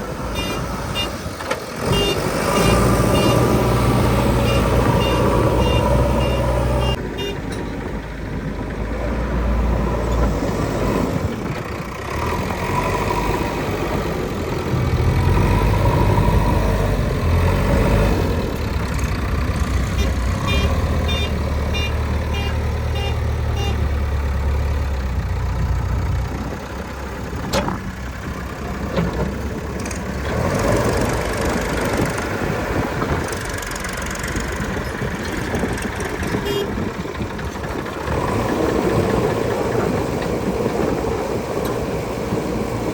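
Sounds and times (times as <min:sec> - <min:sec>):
diesel engine working: 0:00.0 - 0:42.9
high beeps: 0:04.4 - 0:07.4.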